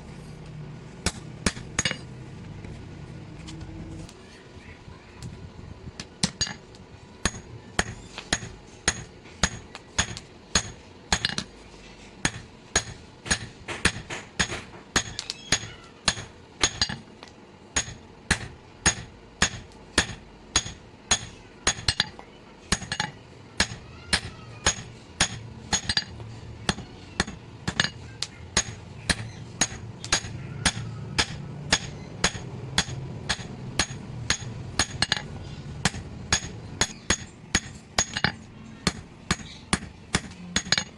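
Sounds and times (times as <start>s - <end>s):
low hum: 0.0s - 22.1s
hammer striking steel on anvil: 1.0s - 2.1s, 7.2s - 11.5s, 12.2s - 17.0s, 17.8s - 40.9s.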